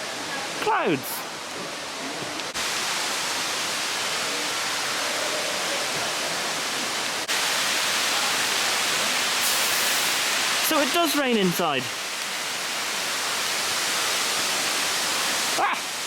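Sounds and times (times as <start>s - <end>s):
water spray hissing: 9.4s - 12.4s.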